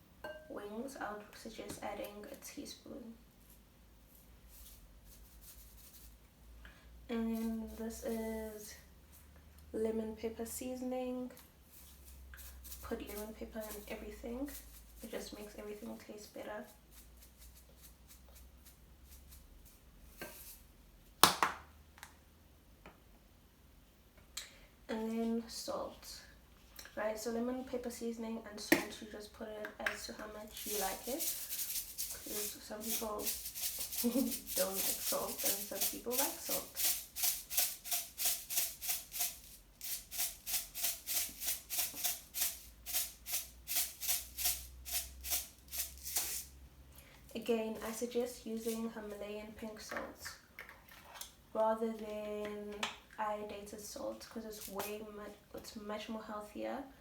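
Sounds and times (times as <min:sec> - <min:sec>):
salt shaker rattling: 0:04.4 - 0:06.2, 0:11.6 - 0:15.9, 0:16.6 - 0:20.7, 0:30.0 - 0:46.6, 0:54.5 - 0:54.9.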